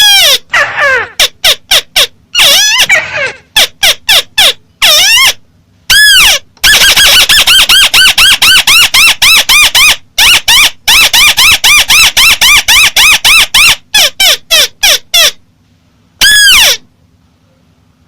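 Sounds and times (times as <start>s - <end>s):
bird squeaky call: 0.0s - 15.4s, 16.2s - 16.8s.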